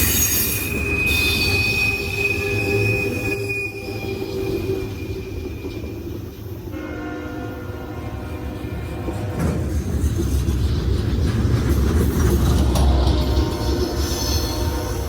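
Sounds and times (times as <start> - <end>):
diesel train rumbling: 0.0 - 15.0
locomotive horn: 6.7 - 9.4.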